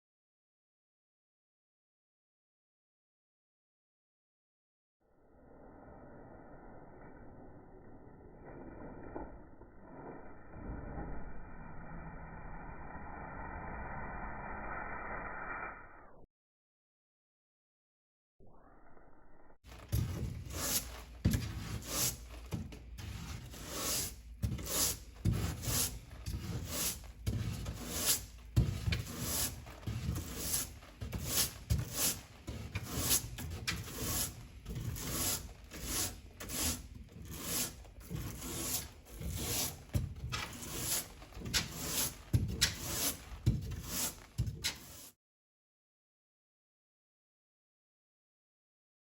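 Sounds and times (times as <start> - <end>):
low hum: 5.1 - 16.3, 18.4 - 19.6
scrubbing strokes: 19.7 - 45.1.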